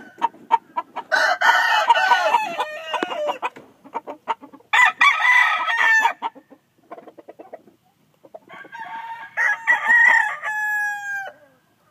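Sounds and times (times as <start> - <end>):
rooster crowing: 1.1 - 3.5, 4.7 - 6.2, 8.5 - 11.5
short clucks: 2.9 - 4.6, 6.3 - 8.5.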